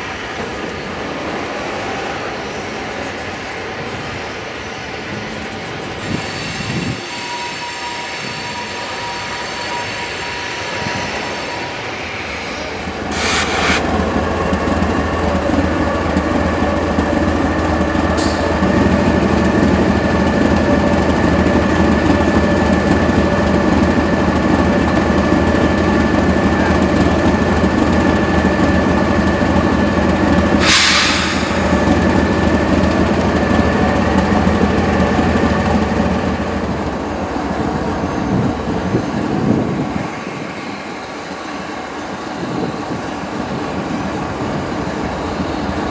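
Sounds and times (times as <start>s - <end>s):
train rumble: 0.0s - 45.9s
train wheels squealing: 2.4s - 13.8s
hiss bursts: 13.1s - 14.0s, 30.6s - 31.9s.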